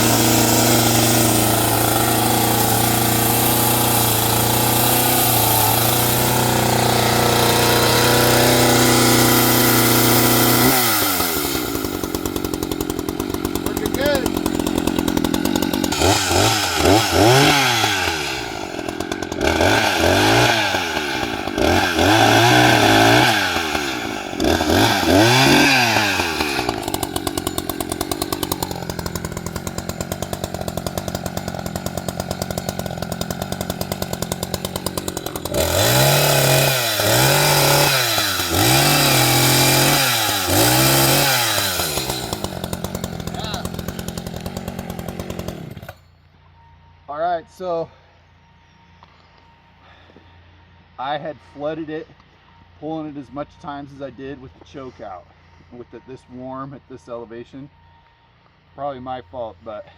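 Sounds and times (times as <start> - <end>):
chainsaw engine revving: 0.0 - 46.0.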